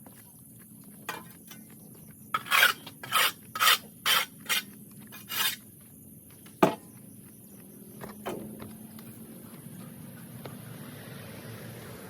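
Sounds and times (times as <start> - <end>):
hand tool scraping floor: 2.4 - 5.6.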